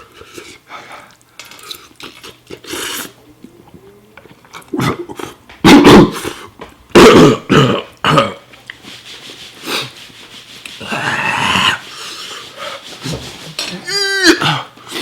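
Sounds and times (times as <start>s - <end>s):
man coughing and hacking: 5.6s - 6.3s, 6.9s - 8.4s.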